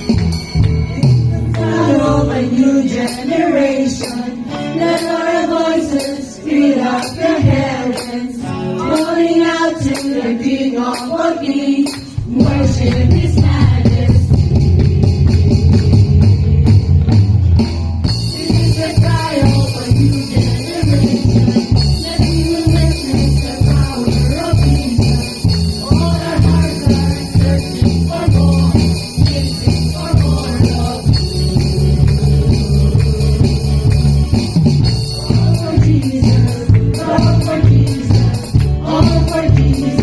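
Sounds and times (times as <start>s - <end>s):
band with bass and drums: 0.0s - 2.4s, 11.9s - 40.0s
voices singing: 0.8s - 17.0s, 18.2s - 40.0s
tambourine struck: 18.1s - 40.0s.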